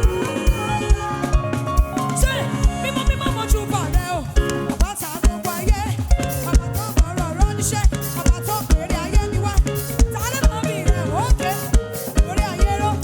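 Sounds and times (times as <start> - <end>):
sliding lead melody: 0.0 - 5.1
live band playing gospel music: 0.0 - 13.0.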